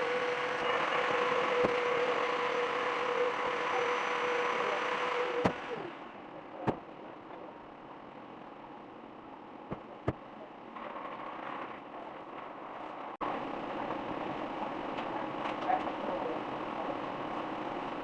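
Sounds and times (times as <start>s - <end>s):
car wash machine whining: 0.0s - 6.9s.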